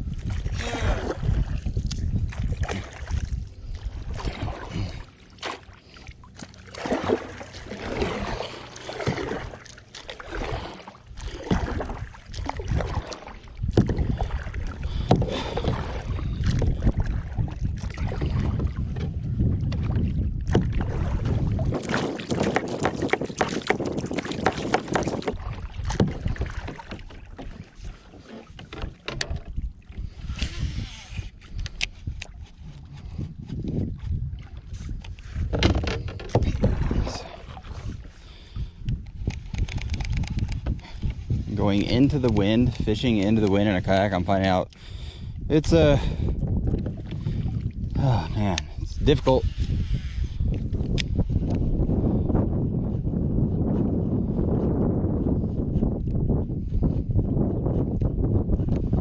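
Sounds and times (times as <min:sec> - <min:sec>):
wind rumbling on microphone: 0:00.0 - 0:59.0
paddle splashing and knocking: 0:00.2 - 0:30.1, 0:32.2 - 0:38.2.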